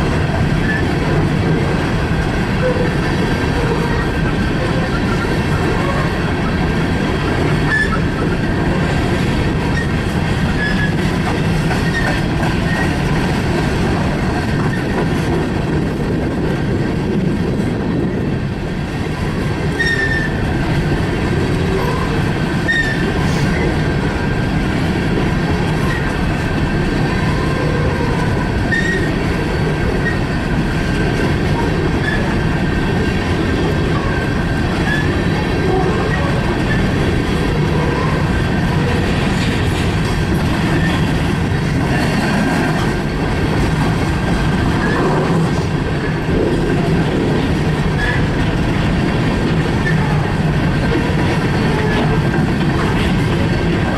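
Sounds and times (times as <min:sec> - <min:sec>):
freight train rumbling: 0:00.0 - 0:53.9
train wheel squeals: 0:07.6 - 0:08.4, 0:10.5 - 0:11.0, 0:11.8 - 0:13.0, 0:19.7 - 0:20.4, 0:21.7 - 0:23.8, 0:25.8 - 0:26.2, 0:28.7 - 0:29.2, 0:30.0 - 0:30.3, 0:32.0 - 0:32.4, 0:33.9 - 0:35.3, 0:40.7 - 0:41.1, 0:47.9 - 0:48.3.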